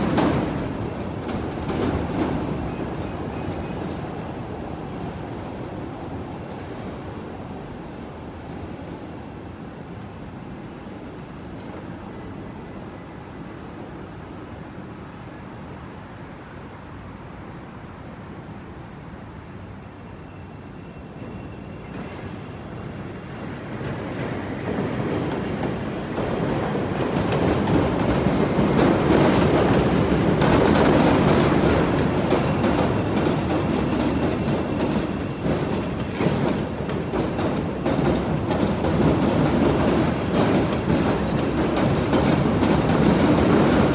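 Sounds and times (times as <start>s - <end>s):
elevated train passing: 0.0s - 43.9s
steel wheels clattering over rail joints: 23.8s - 43.9s.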